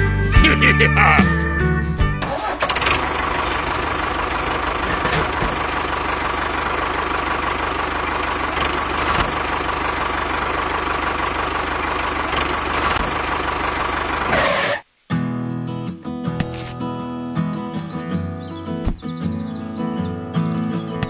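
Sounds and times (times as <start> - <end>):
engine idling: 0.0 - 14.8.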